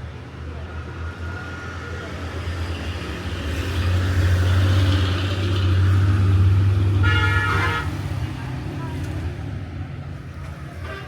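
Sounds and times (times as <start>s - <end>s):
vehicle horn: 7.0s - 8.0s.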